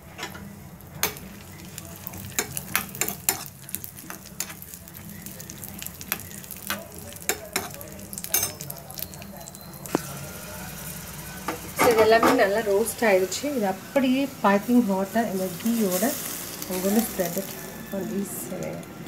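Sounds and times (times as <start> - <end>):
nuts sizzling in a pan: 0.4 - 19.0
spoon scraping and clicking on pan: 6.1 - 8.6.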